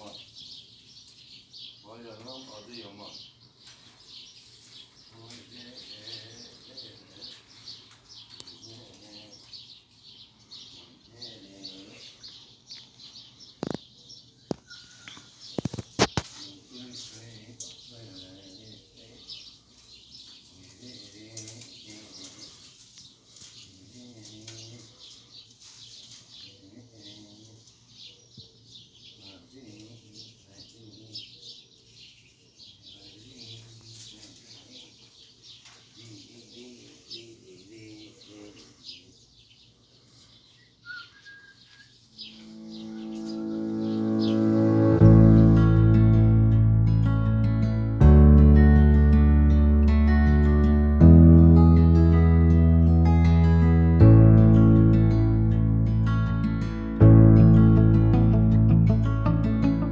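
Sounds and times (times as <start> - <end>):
small birds chirping: 0.0 - 45.8
faint low sounds: 42.4 - 59.9.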